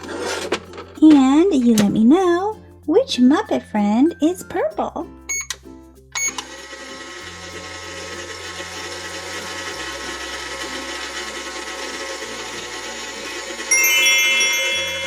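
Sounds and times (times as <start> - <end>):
toy microwave humming: 6.2 - 15.0.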